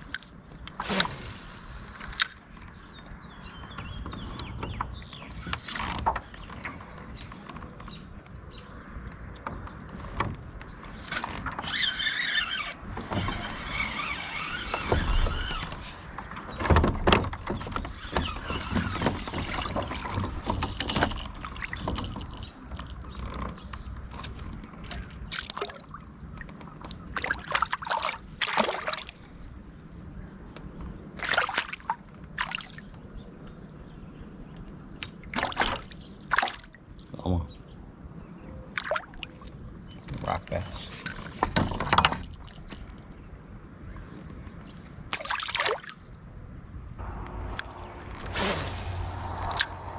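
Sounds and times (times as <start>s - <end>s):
water splashing: 27.1s - 29.6s, 45.2s - 46.1s.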